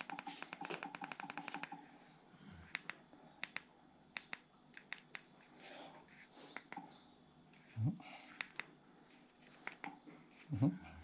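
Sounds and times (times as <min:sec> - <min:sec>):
small sharp clicks: 0:02.7 - 0:05.3.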